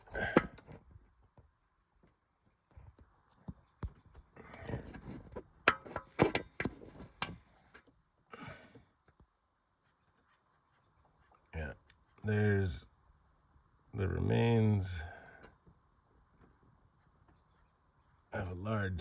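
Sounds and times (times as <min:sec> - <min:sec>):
knocks clicks and rustles: 0:03.4 - 0:07.9.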